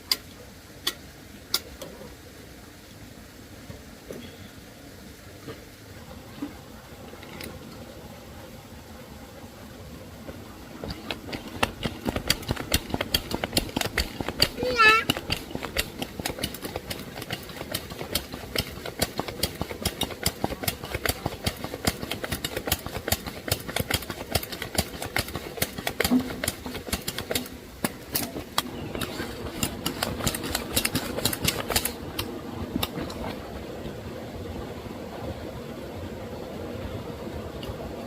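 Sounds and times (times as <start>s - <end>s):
rapid clatter of sharp clicks: 10.8s - 33.2s
small engine running: 28.2s - 33.2s.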